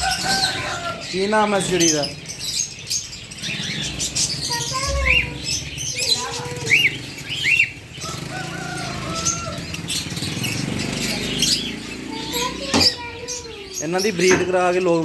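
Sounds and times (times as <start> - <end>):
caged birds chirping: 0.0 - 15.0.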